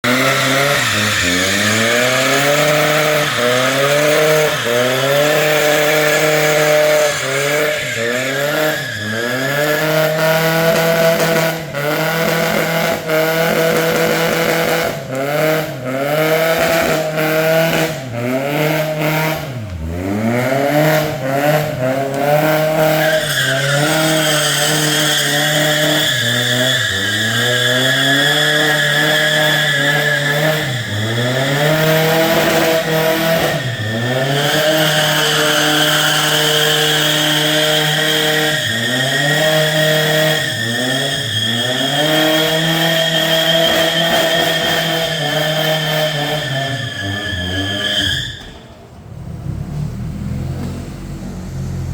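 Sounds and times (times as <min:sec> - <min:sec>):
tyres squealing: 0:00.0 - 0:10.5, 0:22.6 - 0:48.7
car engine revving: 0:00.0 - 0:51.9.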